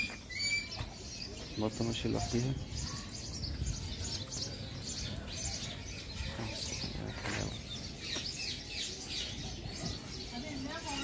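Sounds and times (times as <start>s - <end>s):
birds chirping and twittering: 0.0s - 11.0s.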